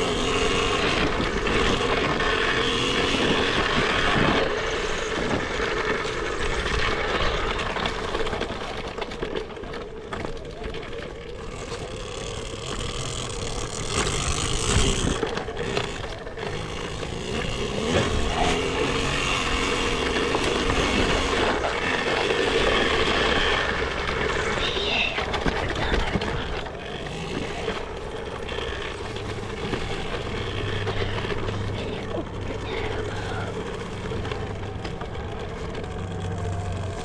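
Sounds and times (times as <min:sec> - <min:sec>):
dirt bike engine running: 0:00.0 - 0:37.0
tyre and chassis clatter: 0:00.0 - 0:37.0.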